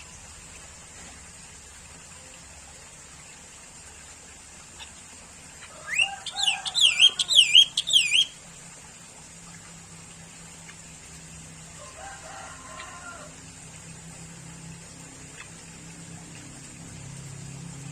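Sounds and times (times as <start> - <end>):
bird whistling song: 5.7 - 8.4.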